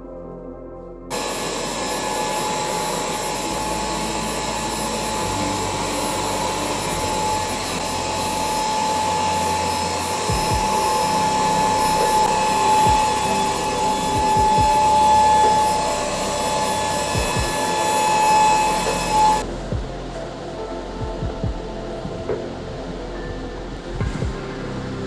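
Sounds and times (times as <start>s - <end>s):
vacuum cleaner whining: 1.1s - 21.3s
dull low bumps: 20.9s - 24.8s.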